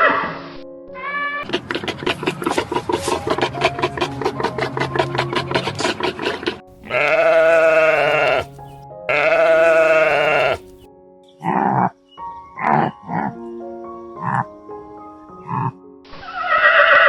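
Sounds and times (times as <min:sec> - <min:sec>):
background music: 0:00.0 - 0:16.2
farm animal bleating: 0:06.7 - 0:11.9.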